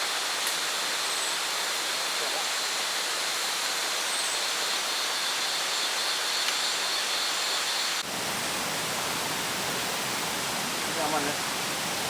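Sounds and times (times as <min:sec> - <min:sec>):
waterfall rushing: 0:07.8 - 0:12.0.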